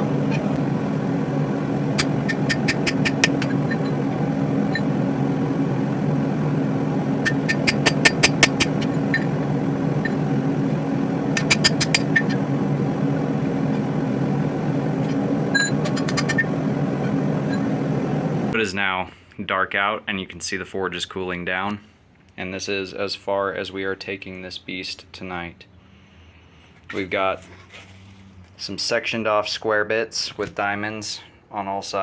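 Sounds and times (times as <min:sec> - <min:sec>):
forge humming: 0:00.0 - 0:18.6.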